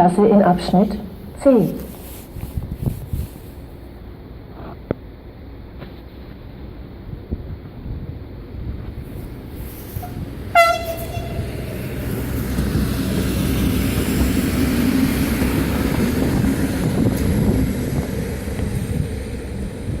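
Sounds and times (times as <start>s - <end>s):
train running rumble: 0.0s - 20.0s
train horn blast: 9.8s - 12.2s.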